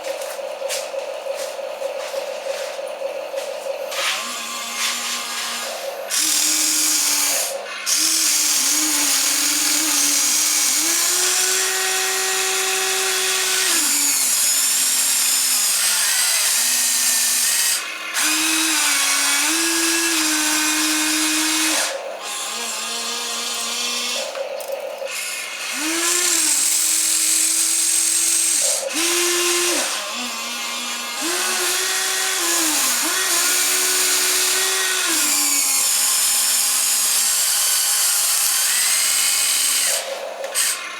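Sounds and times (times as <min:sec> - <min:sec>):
toy gear motors whining: 0:03.9 - 0:24.4, 0:25.1 - 0:40.9.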